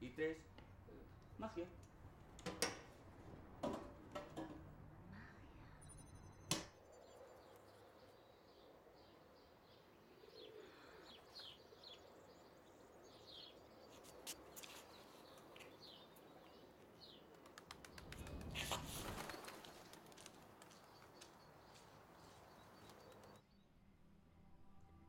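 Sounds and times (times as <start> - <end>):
small birds chirping: 5.1 - 23.6.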